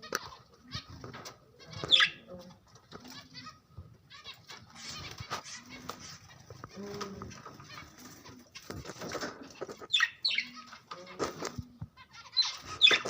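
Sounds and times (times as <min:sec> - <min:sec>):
budgerigars chirping: 0:00.1 - 0:02.3, 0:09.3 - 0:10.8, 0:12.0 - 0:13.0.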